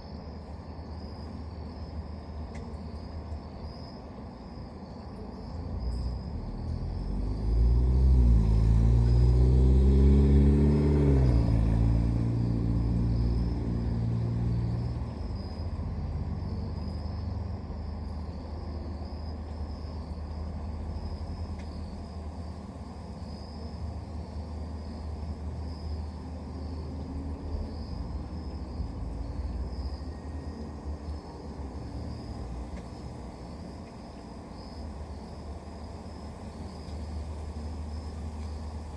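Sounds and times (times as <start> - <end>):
crickets chirping: 0.0 - 38.9
vehicle engine rumbling past: 6.1 - 18.2.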